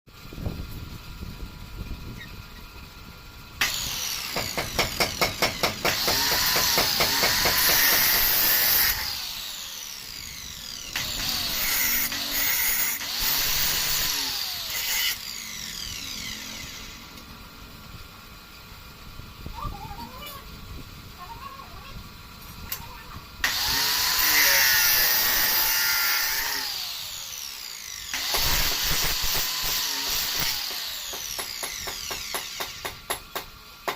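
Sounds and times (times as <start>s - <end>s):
metal cut-off saw motor: 3.6s - 17.5s, 23.4s - 33.3s.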